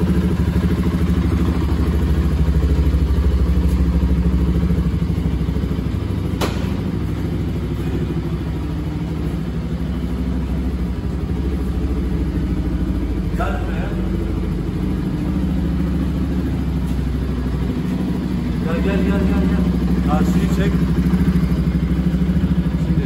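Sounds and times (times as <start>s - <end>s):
motorcycle engine idling: 0.0s - 23.0s
sharp click: 6.3s - 6.8s.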